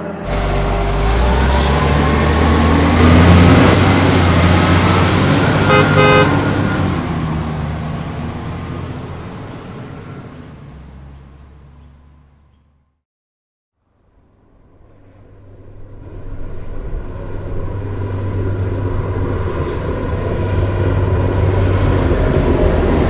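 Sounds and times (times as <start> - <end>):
vehicle passing by: 0.0 - 12.6, 15.1 - 23.0
car horn double toot: 5.6 - 6.5.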